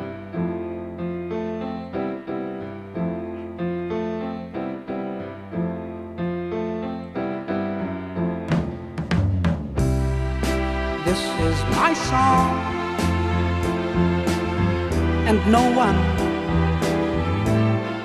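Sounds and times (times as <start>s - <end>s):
piano chords: 0.0s - 18.0s
held bass line: 9.5s - 18.0s.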